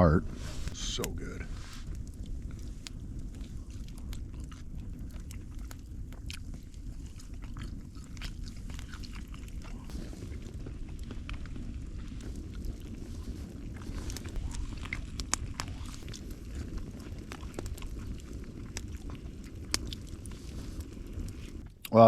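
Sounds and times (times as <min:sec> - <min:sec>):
steady low rumble: 0:00.0 - 0:22.0
person chewing food: 0:01.7 - 0:21.9.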